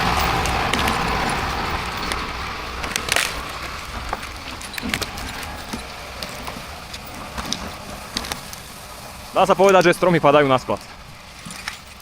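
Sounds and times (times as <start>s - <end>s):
sharp cracks: 0.0s - 6.3s
machine engine running: 0.0s - 12.0s.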